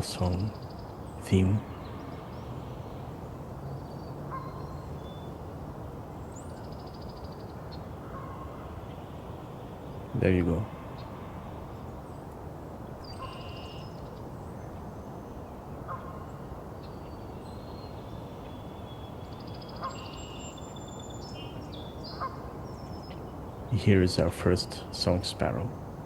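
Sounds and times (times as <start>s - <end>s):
songbirds singing: 0.0s - 26.0s
short sharp bird calls: 13.0s - 14.2s.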